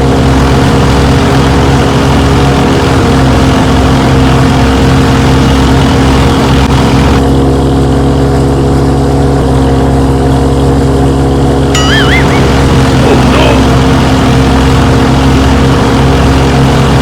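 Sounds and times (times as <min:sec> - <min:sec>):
tractor engine droning: 0:11.6 - 0:17.0.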